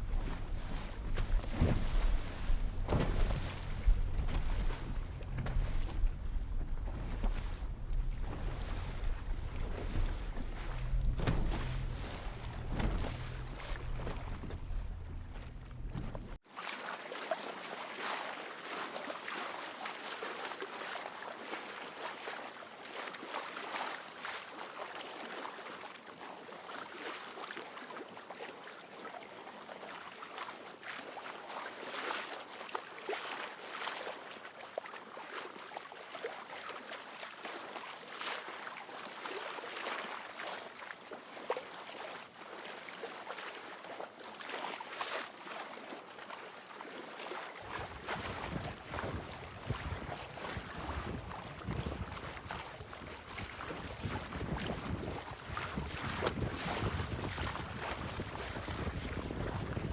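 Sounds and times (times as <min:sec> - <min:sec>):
low wind rumble on microphone: 0:00.0 - 0:16.4, 0:47.6 - 0:59.9
water rushing along boat hull: 0:00.0 - 0:59.9
wind: 0:00.0 - 0:59.9.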